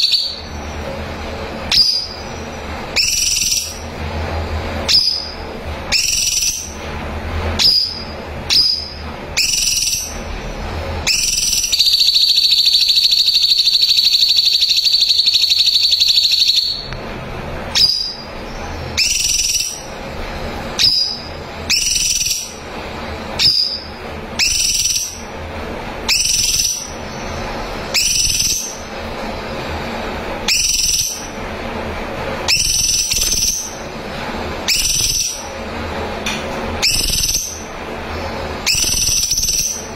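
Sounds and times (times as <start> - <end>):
bird whistled calls: 0.0 - 0.6, 1.7 - 2.4, 3.0 - 3.8, 4.9 - 6.8, 7.6 - 10.2, 11.0 - 16.9, 17.7 - 19.9, 20.8 - 22.6, 23.4 - 25.2, 26.1 - 28.9, 30.4 - 31.3, 32.5 - 33.8, 34.6 - 35.5, 36.8 - 37.7, 38.6 - 39.9
bird rapid trill: 0.0 - 0.8, 1.7 - 3.9, 4.8 - 6.8, 7.6 - 10.3, 11.0 - 16.9, 17.7 - 20.0, 20.8 - 22.7, 23.4 - 25.3, 26.1 - 28.9, 30.4 - 31.4, 32.5 - 33.9, 34.6 - 35.5, 36.8 - 39.9.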